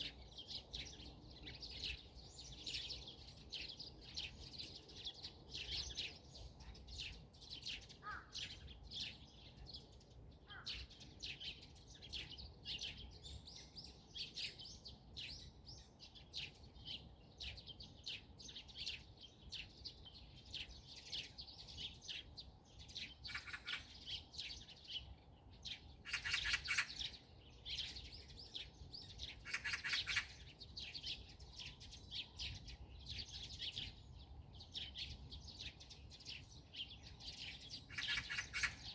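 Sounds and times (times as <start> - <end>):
songbirds chirping: 0.0 - 38.9
rapid bird trills: 23.3 - 24.0, 26.0 - 27.2, 29.3 - 30.5, 37.8 - 38.9.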